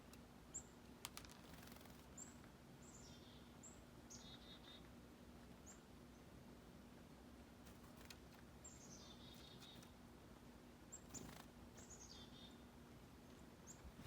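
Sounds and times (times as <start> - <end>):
songbird calls: 2.1 - 5.0, 8.6 - 10.0, 10.9 - 14.0.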